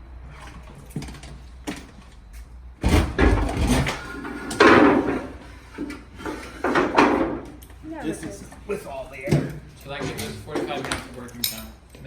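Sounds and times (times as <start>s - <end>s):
clunks and rattling of equipment: 0.2s - 12.0s
heavy thud: 2.8s - 3.8s.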